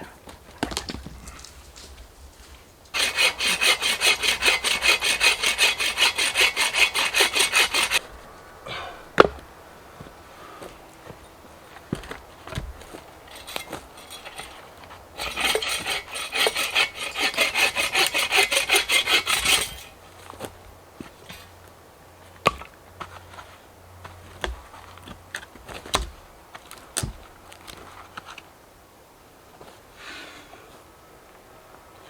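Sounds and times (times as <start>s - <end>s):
hand saw cutting wood: 2.9s - 8.1s, 11.9s - 20.5s.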